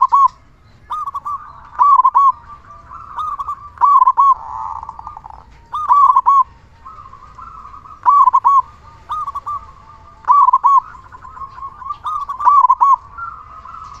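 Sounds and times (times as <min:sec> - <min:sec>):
dove cooing: 0:00.0 - 0:14.0.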